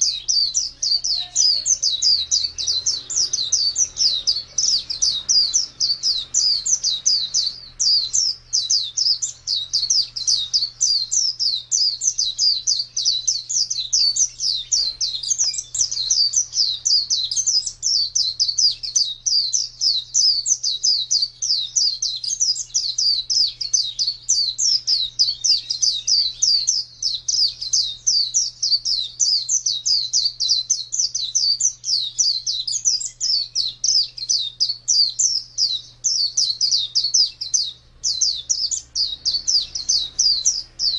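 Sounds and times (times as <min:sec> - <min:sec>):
bird singing rapid high chirps: 0:00.0 - 0:40.9.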